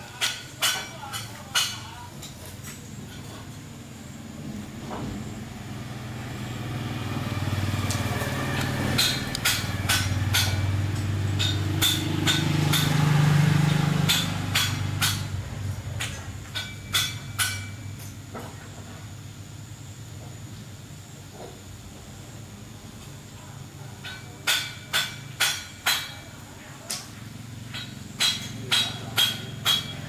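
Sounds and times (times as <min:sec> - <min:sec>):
small engine running: 0:04.1 - 0:16.5
sharp knocks: 0:08.6 - 0:18.6, 0:27.7 - 0:30.0.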